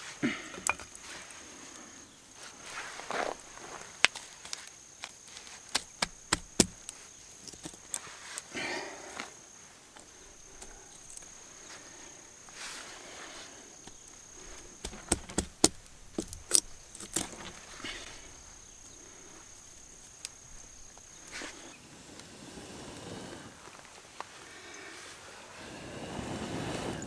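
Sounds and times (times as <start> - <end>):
insect trilling: 0.2 - 21.9
soft rustles: 0.8 - 8.5
sharp clicks and knocks: 5.7 - 8.0, 14.5 - 17.6.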